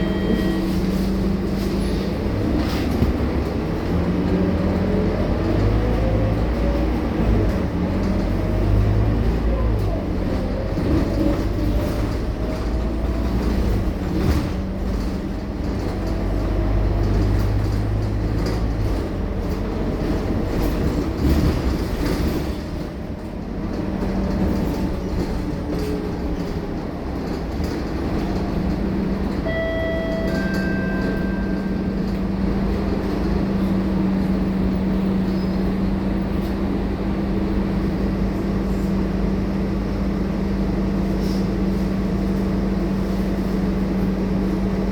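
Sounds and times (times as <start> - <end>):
brief beeping tones: 0.0 - 1.0, 29.4 - 32.2
bus diesel engine running: 0.0 - 44.9
rattle of moving bus: 0.0 - 44.9.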